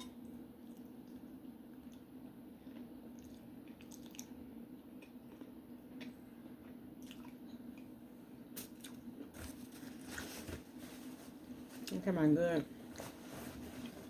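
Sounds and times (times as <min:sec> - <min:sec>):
steady low hum: 0:00.0 - 0:14.0
wet chewing and squishing: 0:02.7 - 0:04.4.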